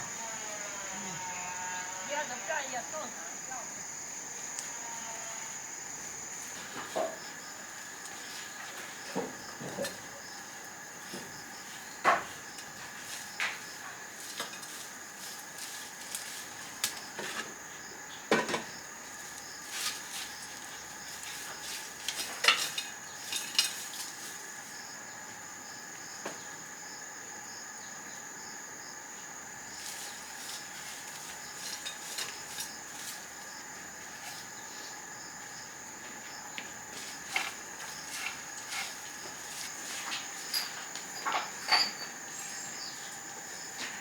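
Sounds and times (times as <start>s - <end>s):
insects chirring: 0.0s - 44.0s
dishes and utensils clinking: 22.1s - 24.1s, 40.4s - 42.4s.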